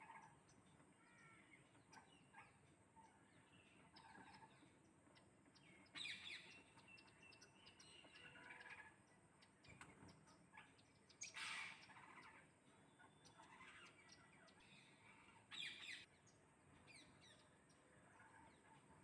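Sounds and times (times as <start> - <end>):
parrots chirping and squawking: 8.1 - 8.9, 10.7 - 12.5, 13.3 - 14.3.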